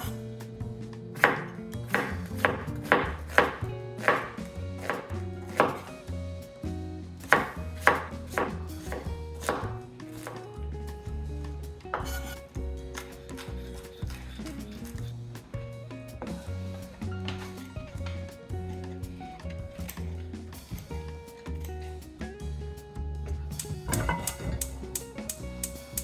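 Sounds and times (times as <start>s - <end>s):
knife chopping on cutting board: 1.2s - 5.9s, 7.3s - 10.4s.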